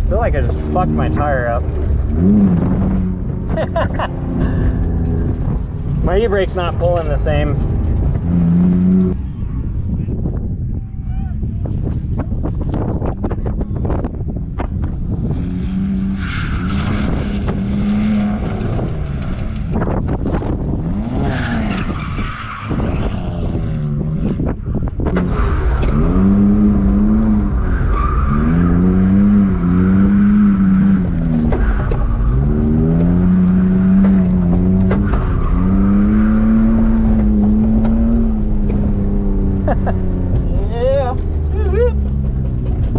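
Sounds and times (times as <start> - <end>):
car engine revving: 0.0 - 9.2, 11.5 - 42.9
tires squealing: 14.8 - 42.9.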